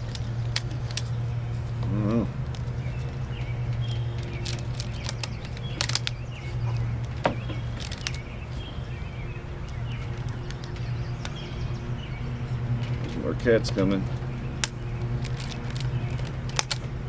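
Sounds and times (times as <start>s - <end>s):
small birds chirping: 0.0s - 17.0s
steady low hum: 0.0s - 17.0s
rubber bands snapping: 1.8s - 8.4s, 13.6s - 17.0s.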